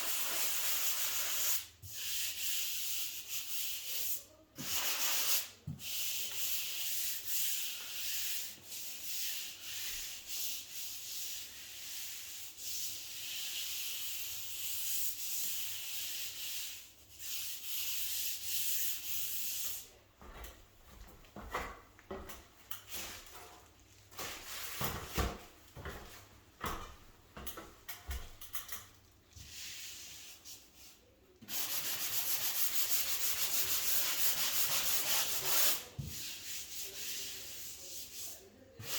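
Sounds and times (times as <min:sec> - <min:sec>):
sanding sponge scrubbing: 0:31.5 - 0:38.4.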